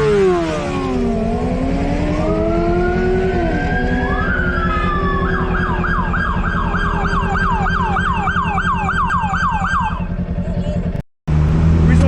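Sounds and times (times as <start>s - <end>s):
police siren yelping: 1.4s - 10.5s
motorcycle engine idling: 3.8s - 11.0s.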